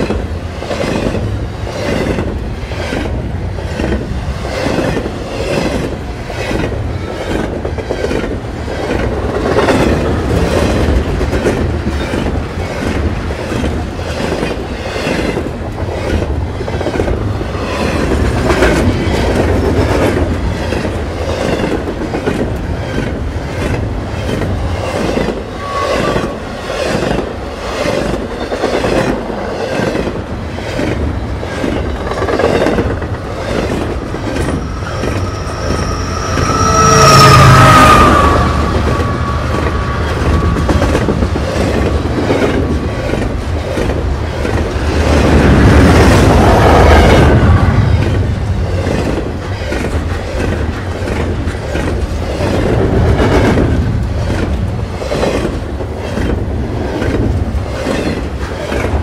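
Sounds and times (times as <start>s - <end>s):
freight train rumbling past: 0.0s - 59.0s
wheels clickety-clacking: 48.0s - 59.0s.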